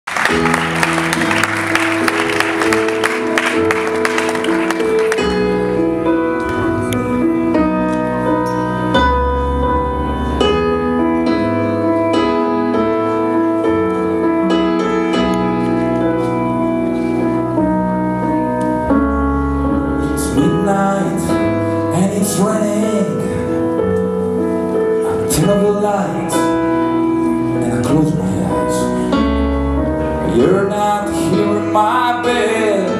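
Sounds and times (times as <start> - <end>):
audience applause: 0.0 - 5.7
bending melody line: 0.1 - 32.9
held keyboard chords: 0.1 - 32.9
live rock band playing: 0.1 - 32.9
low bass notes: 0.3 - 12.7.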